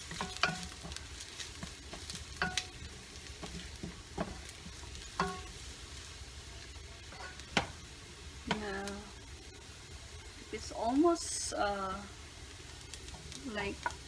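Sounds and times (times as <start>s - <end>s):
utensil tapping and scraping pan: 0.0s - 5.6s, 7.1s - 7.8s
ginger sizzling in oil: 0.0s - 14.0s.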